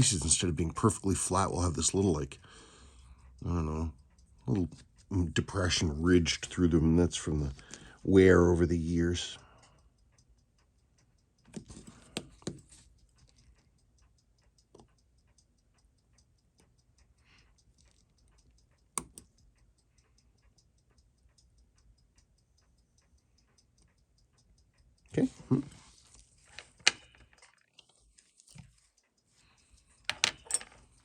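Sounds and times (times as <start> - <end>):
rapid watch ticking: 0.0 - 31.0
tools clicking and tapping: 10.6 - 20.6, 23.0 - 31.0.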